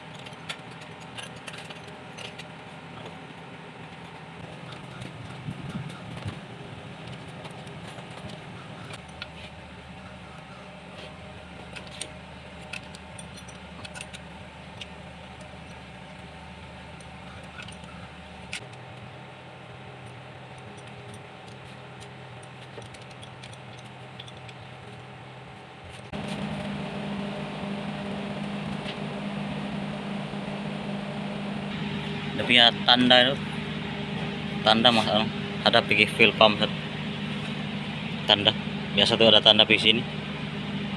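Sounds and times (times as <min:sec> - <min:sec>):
steady machine hum: 0:26.1 - 0:40.9.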